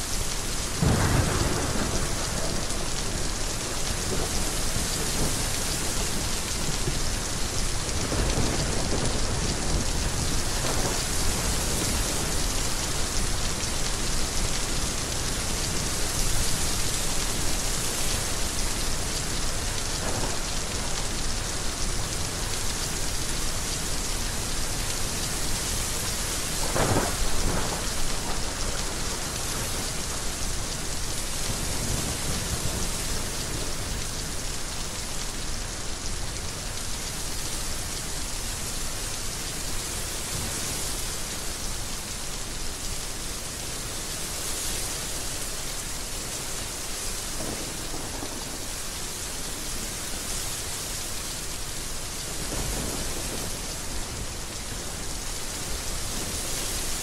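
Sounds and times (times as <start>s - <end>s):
heavy rain pouring: 0.0s - 57.0s
thunder rolling: 0.8s - 2.6s.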